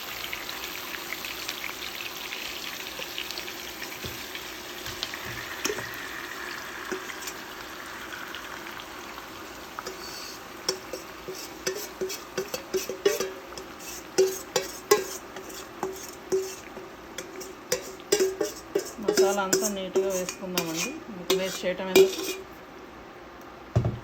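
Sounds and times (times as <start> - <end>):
hot oil sizzling: 0.0 - 22.6
utensil clinking against pot: 10.7 - 22.5.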